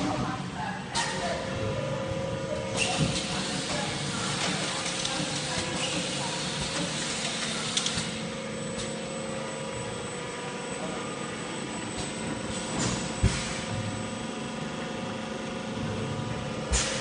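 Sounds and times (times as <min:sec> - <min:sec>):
bottling machine humming: 0:00.0 - 0:17.0.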